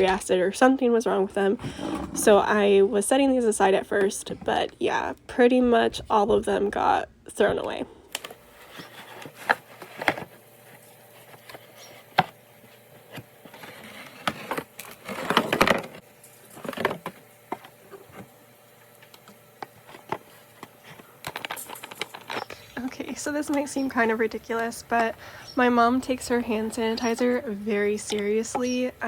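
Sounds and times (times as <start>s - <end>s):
rustling and scraping: 8.4s - 18.3s, 19.6s - 22.8s.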